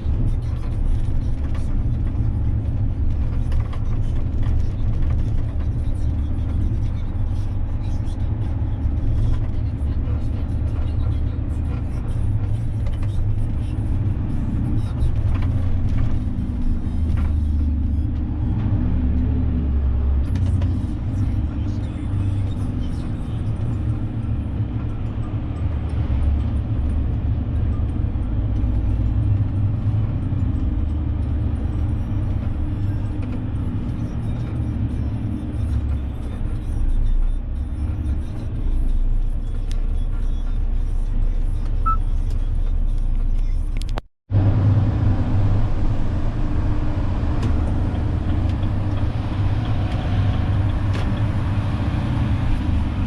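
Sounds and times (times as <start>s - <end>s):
road noise: 0.0s - 53.0s
truck diesel engine running: 44.3s - 53.0s.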